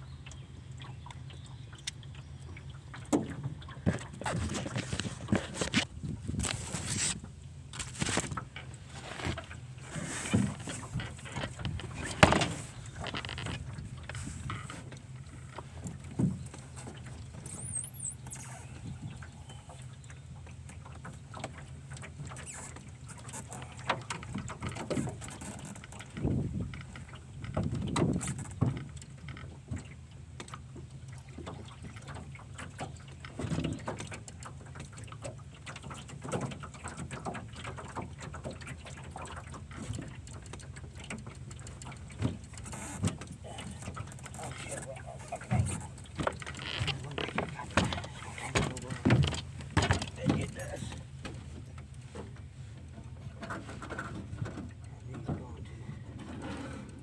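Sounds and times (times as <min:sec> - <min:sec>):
knocks and clatter: 0:45.6 - 0:51.9.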